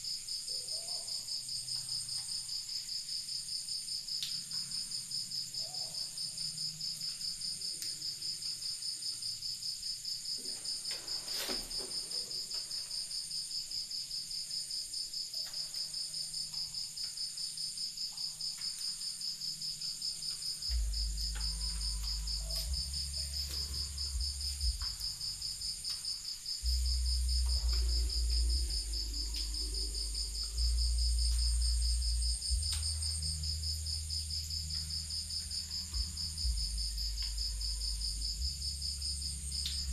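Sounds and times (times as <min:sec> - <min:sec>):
crickets chirping: 0:00.0 - 0:39.9
deep low rumble: 0:20.7 - 0:25.8, 0:26.6 - 0:39.9.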